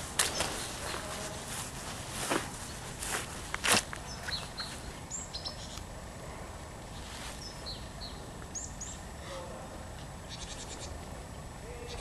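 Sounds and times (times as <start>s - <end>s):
steady background hiss: 0.0s - 12.0s
small birds chirping: 0.2s - 5.9s, 6.9s - 9.1s, 10.2s - 11.0s.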